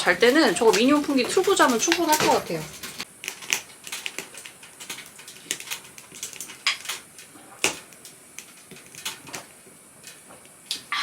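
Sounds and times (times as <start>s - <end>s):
small hard objects clinking: 0.0s - 10.2s.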